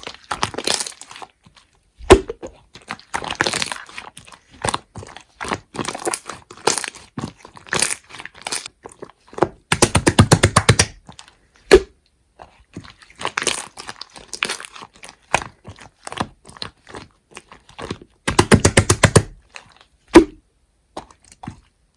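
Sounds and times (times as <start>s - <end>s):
slime squeezed clicking and popping: 9.7s - 11.0s, 18.3s - 19.4s.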